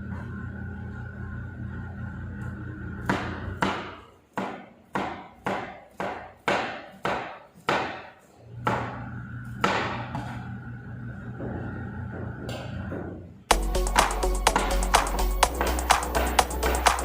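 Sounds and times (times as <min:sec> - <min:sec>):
knife chopping on wooden board: 0:03.1 - 0:08.1.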